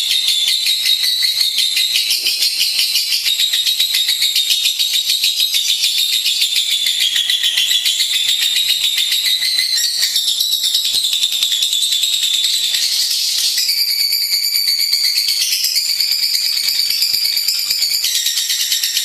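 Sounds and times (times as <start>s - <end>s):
bird trilling chatter: 0.0s - 13.6s.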